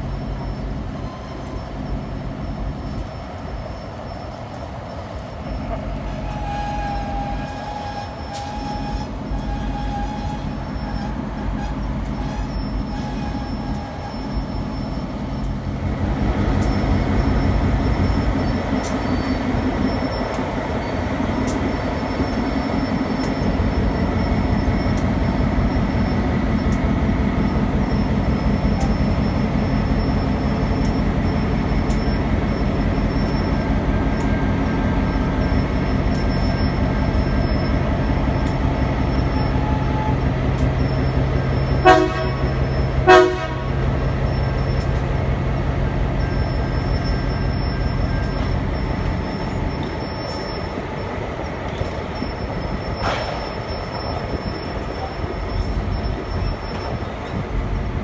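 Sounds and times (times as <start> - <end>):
train rumbling past: 0.0 - 58.0
light clicks of train wheels: 1.3 - 58.0
train horn toots: 6.0 - 14.3, 41.8 - 43.8.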